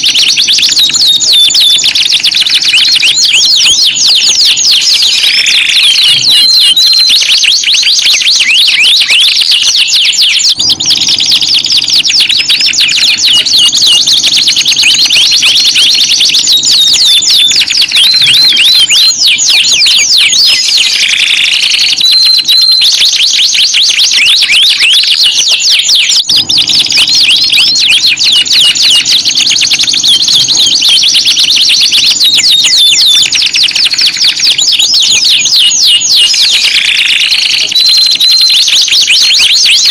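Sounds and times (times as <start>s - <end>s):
canaries singing trills: 0.0s - 39.9s.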